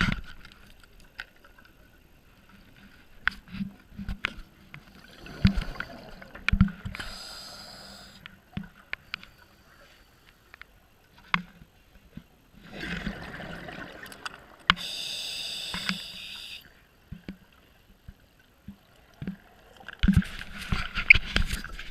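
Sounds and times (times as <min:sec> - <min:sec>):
hissing regulator inhale: 0:07.0 - 0:08.2, 0:14.8 - 0:16.7.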